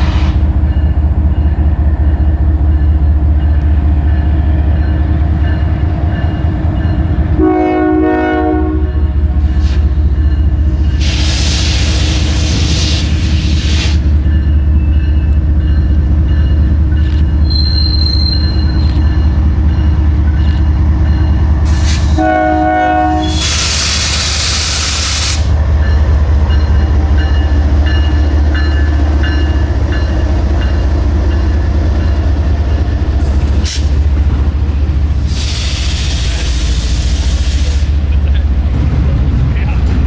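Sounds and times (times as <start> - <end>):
diesel train engine rumble: 0.0 - 40.0
train horn blast: 7.4 - 9.2, 22.2 - 23.9.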